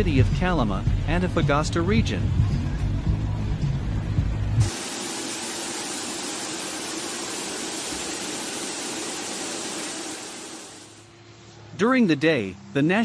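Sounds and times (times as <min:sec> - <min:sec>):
steady rushing noise: 0:04.6 - 0:11.0.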